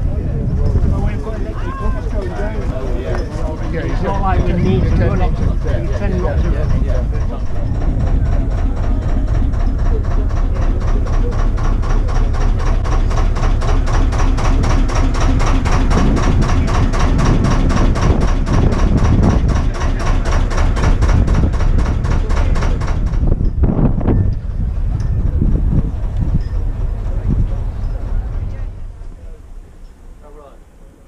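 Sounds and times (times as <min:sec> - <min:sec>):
engine running slowly: 0:00.0 - 0:31.0.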